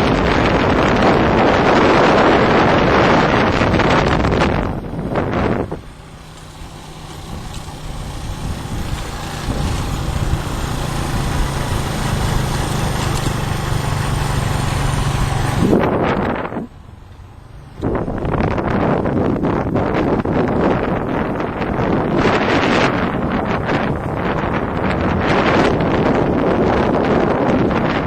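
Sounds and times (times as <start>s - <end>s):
vehicle engine humming: 0.0s - 28.0s.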